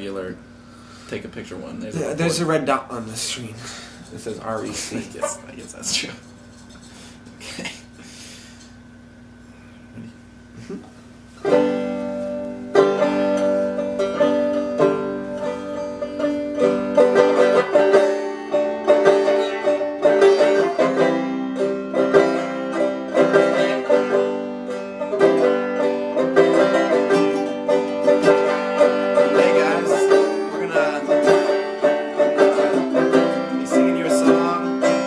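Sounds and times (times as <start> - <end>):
acoustic strings finger-picking: 11.4 - 35.0.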